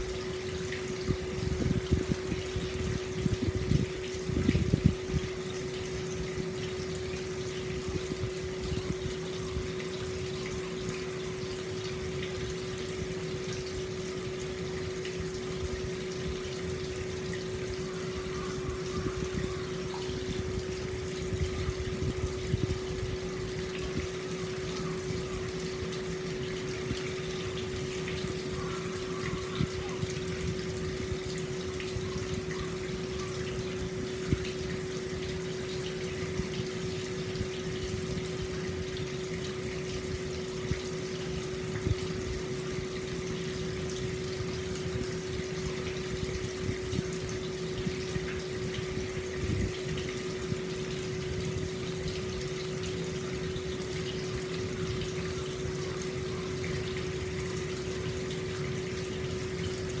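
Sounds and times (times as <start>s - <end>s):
small water splashes: 0.0s - 60.0s
water flowing into a bath: 0.0s - 60.0s.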